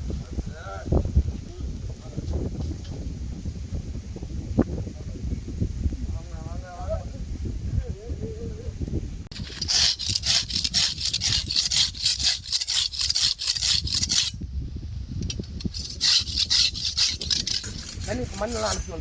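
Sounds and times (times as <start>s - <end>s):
metal knife blade scraping: 9.3s - 14.4s, 15.3s - 19.0s.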